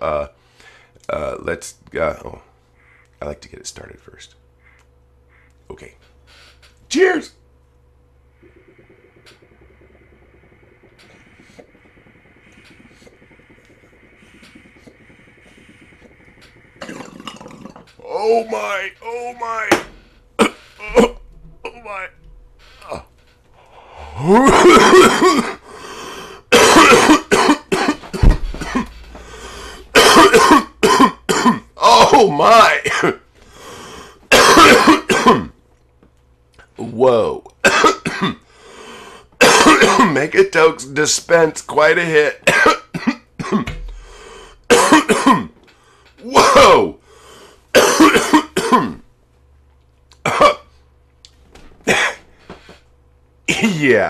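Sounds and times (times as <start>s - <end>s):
man coughing: 20.4s - 21.2s, 24.3s - 25.6s, 26.5s - 29.0s, 30.0s - 32.2s, 32.8s - 33.2s, 34.3s - 35.5s, 39.4s - 40.2s, 42.5s - 43.7s, 44.7s - 45.5s, 46.3s - 46.8s, 47.8s - 49.0s, 51.9s - 52.2s, 53.5s - 53.8s
rasping breath in: 29.1s - 29.9s, 43.9s - 44.6s.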